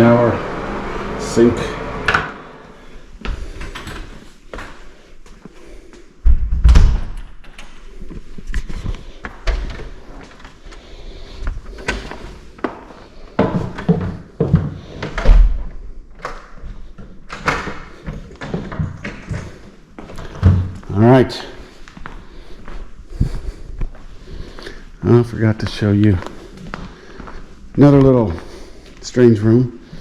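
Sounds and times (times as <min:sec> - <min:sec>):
door slamming: 0:01.5 - 0:02.8
door knocks and thuds: 0:06.3 - 0:07.2.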